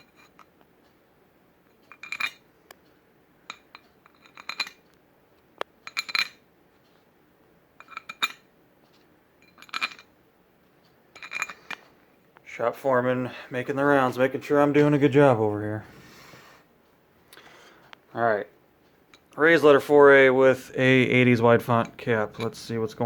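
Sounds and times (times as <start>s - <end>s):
metal clinking and rattling: 0.0s - 0.5s, 1.9s - 2.4s, 3.5s - 4.8s, 5.8s - 6.4s, 7.8s - 8.5s, 9.4s - 10.1s, 11.1s - 11.8s.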